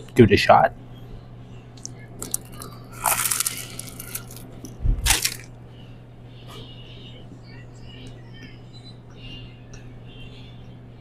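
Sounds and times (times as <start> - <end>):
steady low hum: 0.0 - 11.0
sandwich crunching: 1.8 - 5.6.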